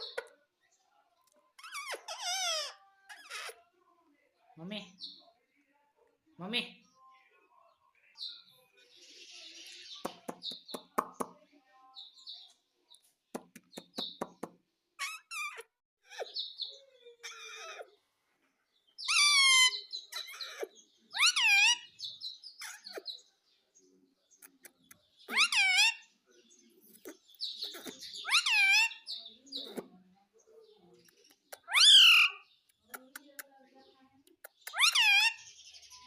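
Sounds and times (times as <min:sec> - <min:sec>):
parrot chirps and squawks: 0:00.0 - 0:00.4, 0:01.5 - 0:03.7, 0:15.0 - 0:18.0, 0:19.0 - 0:23.2, 0:24.4 - 0:26.2, 0:26.9 - 0:30.0, 0:31.5 - 0:32.6, 0:34.4 - 0:36.0.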